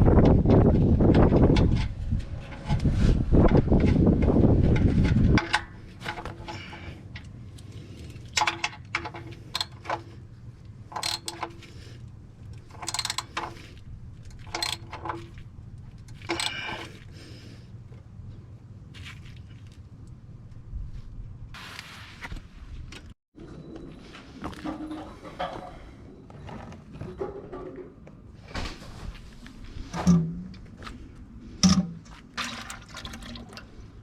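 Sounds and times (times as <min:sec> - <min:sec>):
metal tools clinking: 0:10.9 - 0:11.8, 0:12.6 - 0:15.4, 0:16.1 - 0:17.0.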